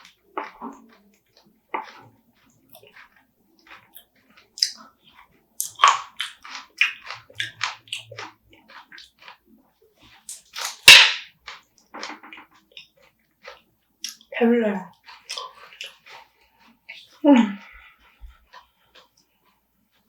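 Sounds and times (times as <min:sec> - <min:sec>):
crab shell crunching while chewed: 0:00.0 - 0:20.0
sharp crack: 0:10.6 - 0:11.3.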